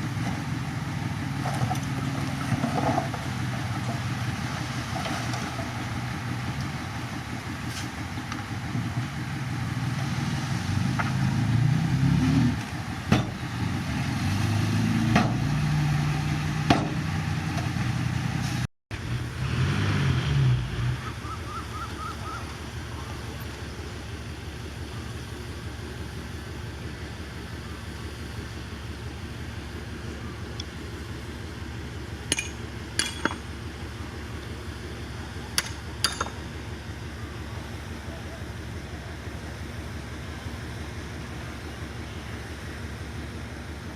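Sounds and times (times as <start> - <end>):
diesel engine under load: 0.0 - 43.9
sharp metallic clanks: 32.3 - 33.5.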